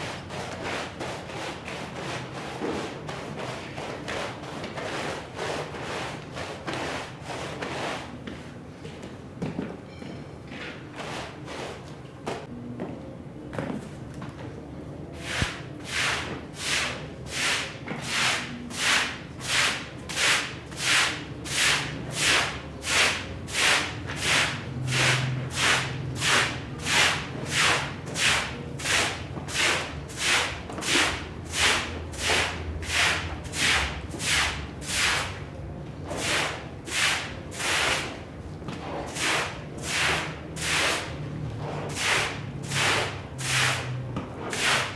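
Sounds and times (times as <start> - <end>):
hand tool swishing over a rug: 15.2 - 35.4, 36.0 - 44.9.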